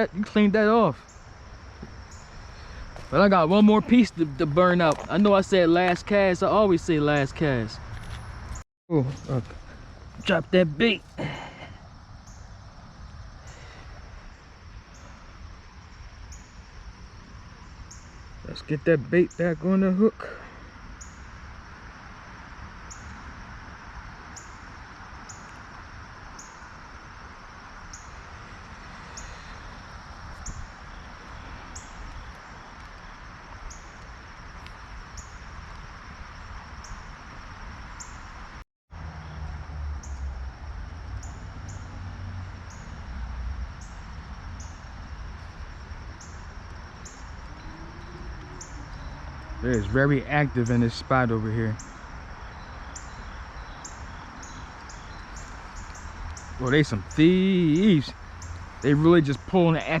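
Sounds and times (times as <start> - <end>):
creek water flowing: 0.0 - 7.9, 21.6 - 38.6, 42.0 - 60.0
high insect hum: 0.0 - 60.0
low rumbling: 41.8 - 53.6.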